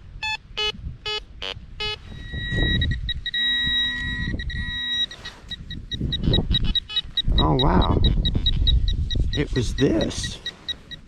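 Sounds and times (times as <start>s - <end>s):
lower electronic tones: 0.0s - 11.0s
high electronic tone: 0.2s - 11.0s
metal detector beeps: 0.2s - 11.0s.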